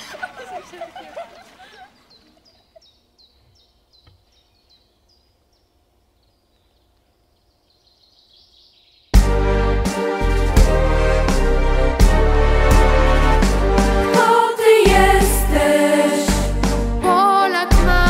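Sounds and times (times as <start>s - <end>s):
songbird chirping: 0.1s - 9.6s
loud music: 9.2s - 18.0s.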